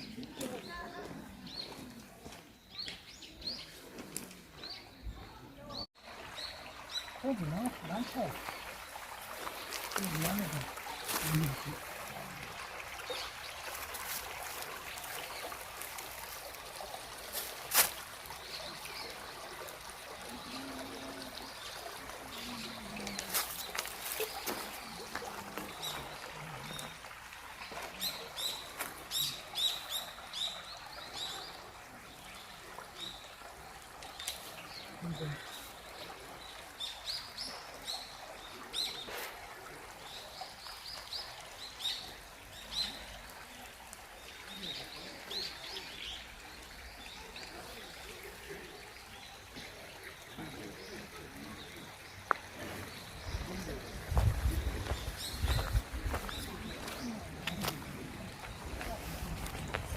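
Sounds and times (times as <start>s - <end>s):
small birds chirping: 0.0s - 12.3s, 40.0s - 59.9s
stream trickling: 0.0s - 59.9s.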